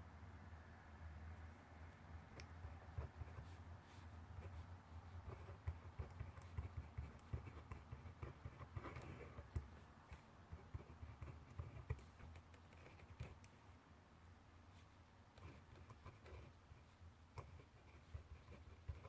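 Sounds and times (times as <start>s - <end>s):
handwriting scratches on paper: 2.8s - 13.5s, 14.8s - 19.0s.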